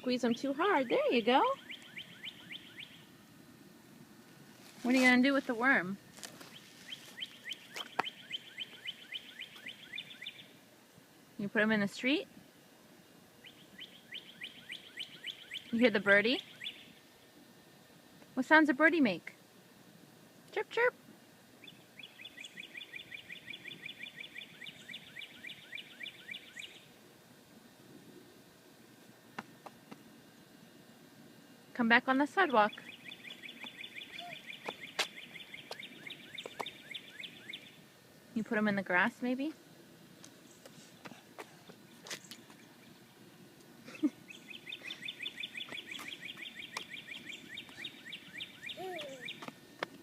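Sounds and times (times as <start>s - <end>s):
songbird chirping: 0.0s - 3.2s, 4.8s - 10.6s, 13.4s - 17.3s, 21.6s - 27.0s, 32.3s - 39.6s, 43.9s - 49.8s.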